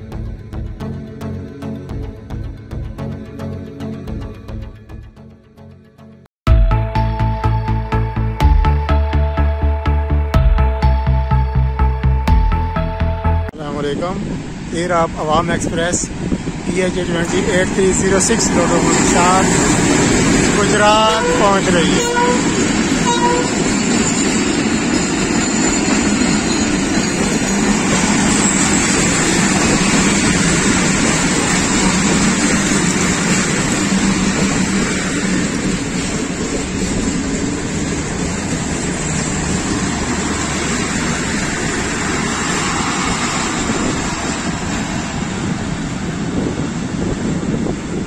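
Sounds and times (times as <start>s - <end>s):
train wheels rumbling on rails: 13.8s - 48.0s.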